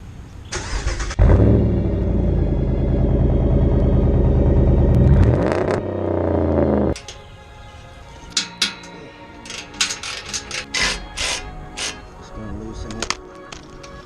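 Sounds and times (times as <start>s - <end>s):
engine cranking: 0.6s - 7.3s, 8.2s - 12.1s
loud engine running: 1.2s - 7.0s.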